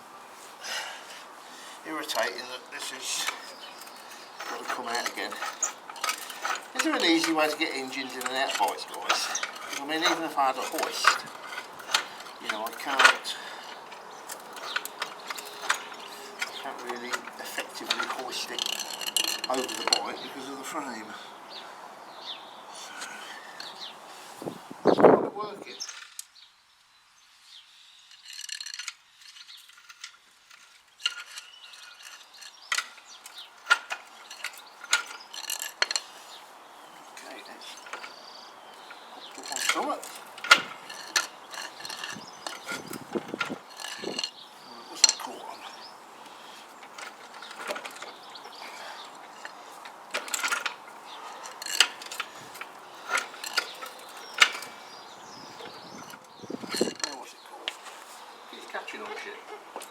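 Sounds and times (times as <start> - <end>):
trolley jack metal clanks: 2.0 - 20.8, 28.1 - 57.3
metal rattling: 2.0 - 21.0, 28.1 - 57.4
metal clicks and clunks: 3.2 - 20.2, 28.3 - 36.3, 37.1 - 44.4, 45.0 - 54.9.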